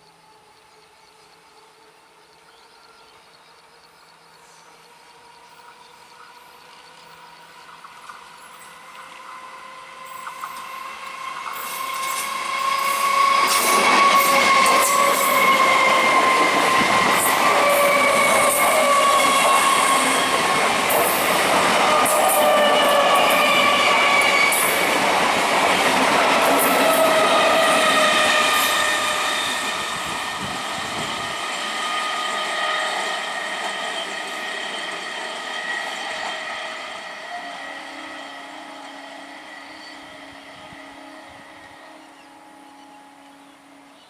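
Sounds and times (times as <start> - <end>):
train wheels rumbling and clattering: 10.0 - 37.2.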